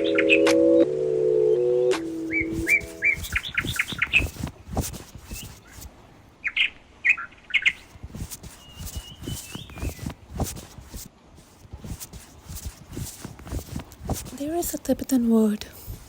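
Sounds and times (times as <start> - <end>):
held music notes: 0.0 - 4.3
small bird chirping: 2.2 - 4.3, 6.4 - 10.1.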